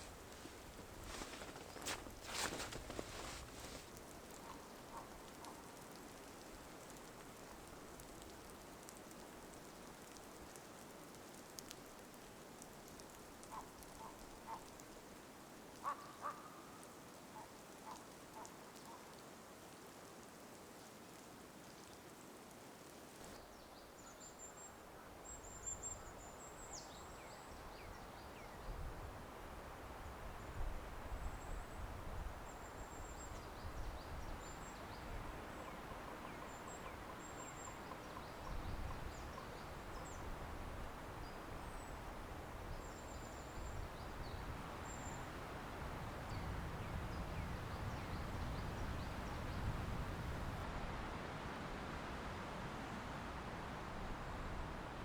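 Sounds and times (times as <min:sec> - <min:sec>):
faint ticks: 0:00.0 - 0:15.0.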